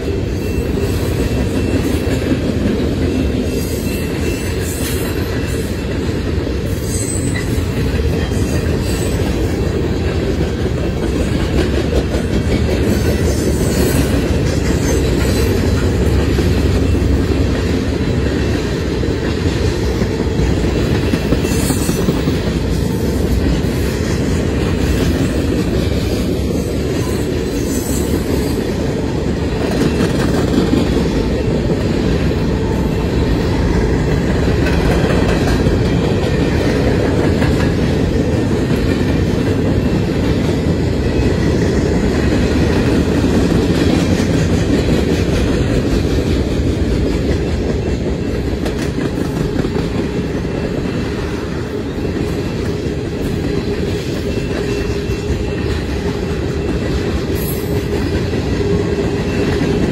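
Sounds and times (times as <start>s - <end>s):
clickety-clack over rail joints: 0.0s - 59.9s
steel wheels rumbling on rail: 0.0s - 59.9s.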